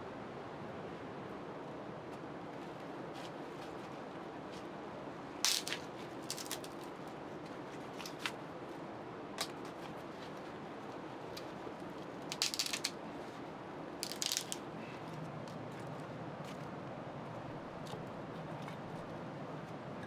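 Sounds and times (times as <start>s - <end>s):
crackling clicking sounds: 5.5s - 6.9s, 9.4s - 9.7s, 11.3s - 13.0s, 14.0s - 14.6s.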